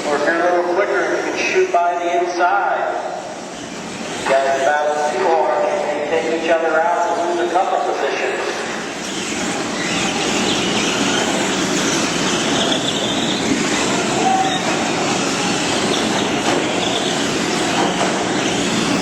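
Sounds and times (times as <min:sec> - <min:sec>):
small motors whining: 0:09.0 - 0:17.7.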